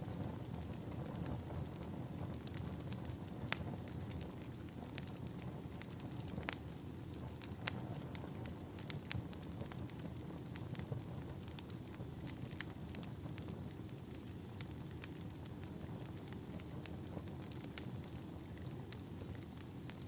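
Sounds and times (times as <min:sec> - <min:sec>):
fireplace crackling: 0:00.0 - 0:20.0.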